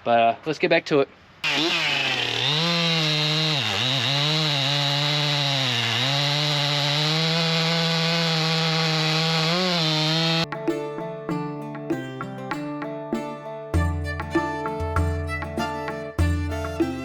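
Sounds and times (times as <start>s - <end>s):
chainsaw cutting logs: 1.4s - 10.4s.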